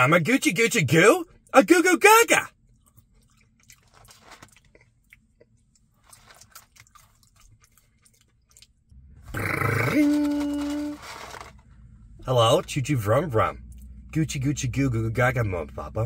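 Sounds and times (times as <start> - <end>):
chewing fries: 2.7 - 11.5.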